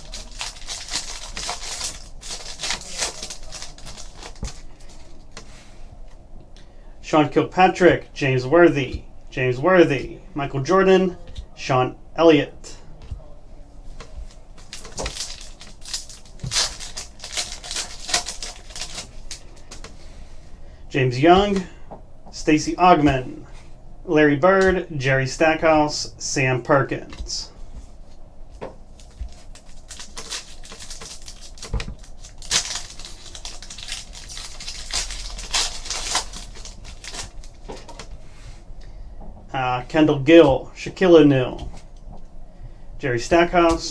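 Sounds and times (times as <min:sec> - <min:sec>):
card pack wrappers crinkling: 0:00.0 - 0:05.5, 0:13.9 - 0:20.0, 0:28.6 - 0:38.1
cards being handled: 0:00.0 - 0:06.7, 0:13.0 - 0:20.4, 0:27.0 - 0:38.5.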